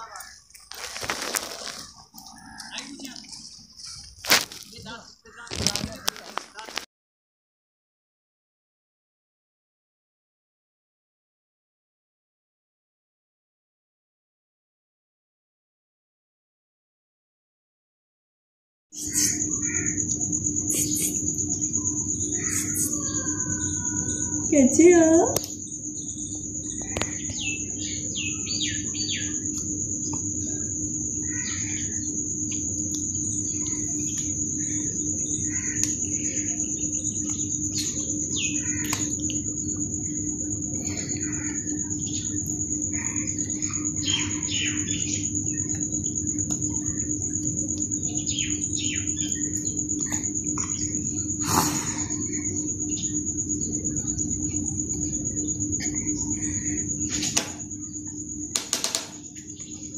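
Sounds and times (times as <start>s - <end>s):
low steady hum: 0.0s - 6.8s, 19.0s - 59.9s
small birds chirping: 0.0s - 6.8s, 19.0s - 59.9s
high-pitched whine: 0.0s - 6.9s, 19.0s - 59.9s.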